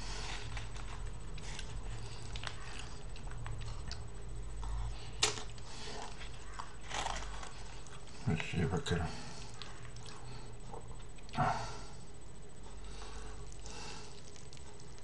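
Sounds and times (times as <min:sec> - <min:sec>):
low steady hum: 0:00.0 - 0:15.0
chewing and lip smacks: 0:00.3 - 0:08.5, 0:09.4 - 0:11.4, 0:13.4 - 0:15.0.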